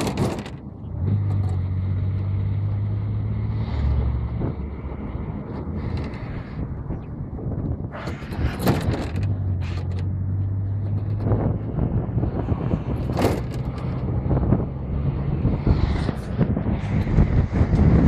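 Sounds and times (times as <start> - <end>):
metal parts creaking and clanking: 0.0 - 0.7, 5.5 - 6.7, 8.0 - 11.4, 12.9 - 14.0.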